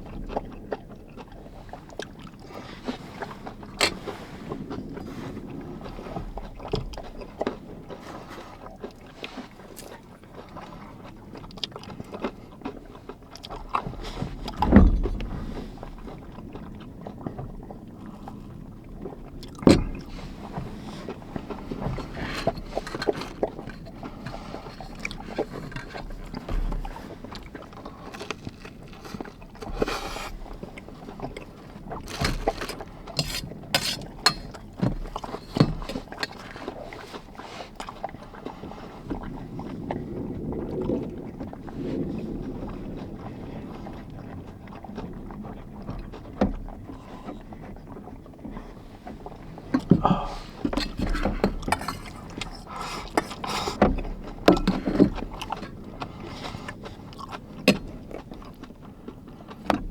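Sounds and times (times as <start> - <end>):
clicks knocks and scrapes: 2.8 - 5.0, 13.8 - 16.0, 19.6 - 37.3, 49.7 - 56.8.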